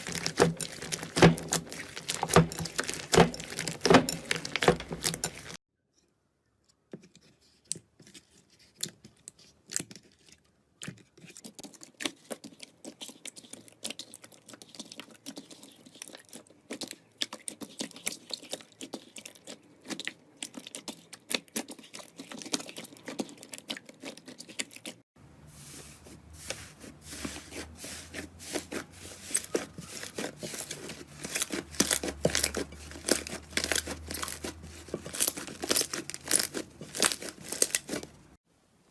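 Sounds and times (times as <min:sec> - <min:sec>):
slime crackling and popping: 0:00.0 - 0:05.6, 0:28.6 - 0:38.4.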